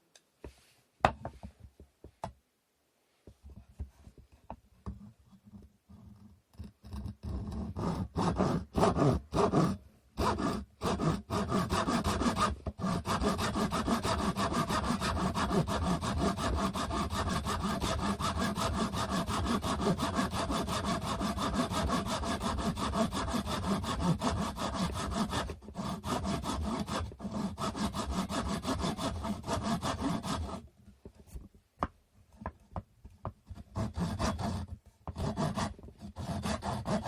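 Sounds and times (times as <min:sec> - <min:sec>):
handsaw cutting wood: 0:07.2 - 0:30.6, 0:33.6 - 0:37.0.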